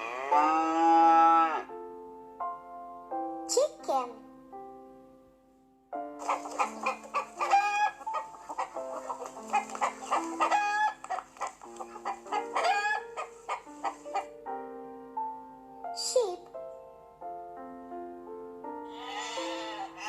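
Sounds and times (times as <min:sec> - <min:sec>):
chicken drawn-out calls: 0:06.2 - 0:14.3, 0:18.9 - 0:20.0
chickens clucking: 0:06.2 - 0:14.4, 0:18.9 - 0:20.0.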